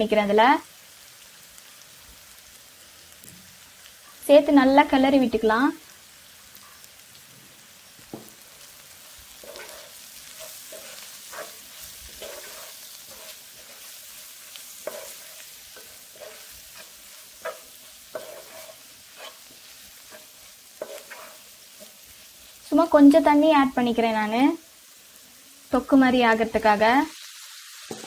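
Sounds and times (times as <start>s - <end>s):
masala sizzling in a frying pan: 0.0s - 28.0s
wooden spatula scraping pan: 9.4s - 14.2s, 14.8s - 22.0s
spatula knocking pan: 14.8s - 22.0s.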